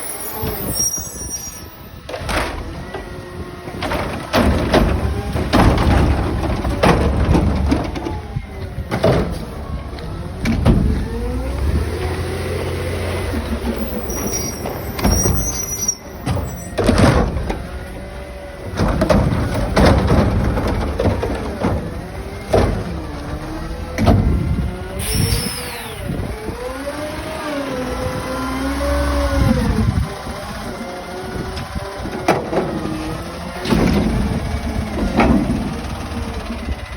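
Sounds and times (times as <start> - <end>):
diesel engine rumbling and revving: 0.0 - 36.9
bins banging against truck: 2.0 - 3.1, 3.7 - 25.5, 31.5 - 36.9.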